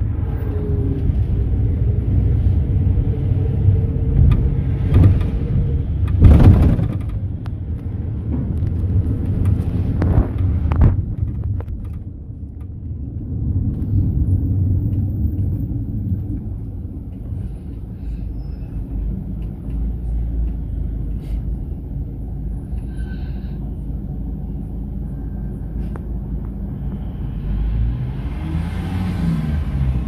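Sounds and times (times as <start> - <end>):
engine and road rumble in cabin: 0.0 - 30.0.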